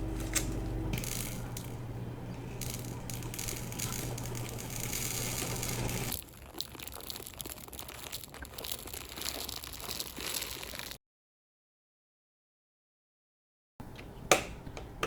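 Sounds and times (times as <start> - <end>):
plastic packaging crinkling: 0.0 - 11.0
beads clicking: 2.6 - 6.2.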